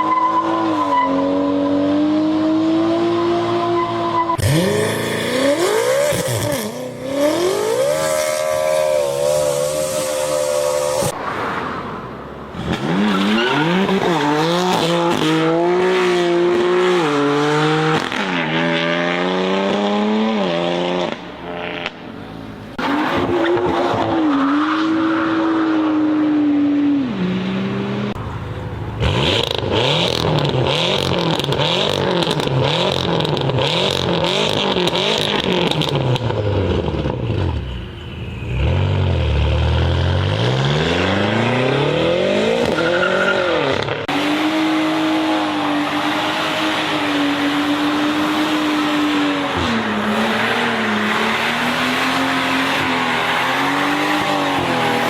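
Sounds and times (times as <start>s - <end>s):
tyre squeal: 3.6s - 5.2s, 7.6s - 11.1s
car engine accelerating hard: 39.0s - 55.0s.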